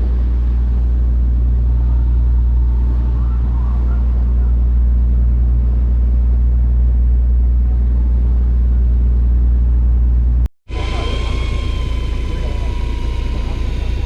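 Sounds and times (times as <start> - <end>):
boat engine droning: 0.0 - 14.0
engine and water noise: 0.0 - 14.0
steady high whine: 0.0 - 14.0.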